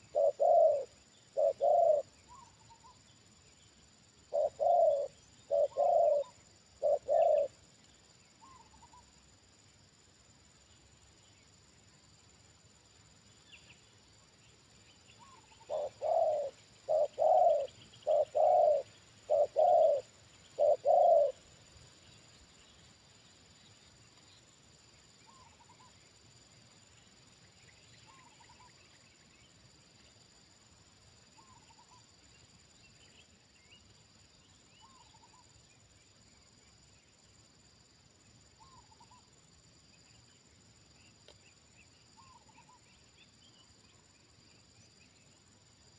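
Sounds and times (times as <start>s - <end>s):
dove cooing: 0.0s - 2.9s, 4.3s - 7.5s, 15.2s - 21.4s
small birds chirping: 0.0s - 9.4s, 13.2s - 30.2s, 31.1s - 45.9s.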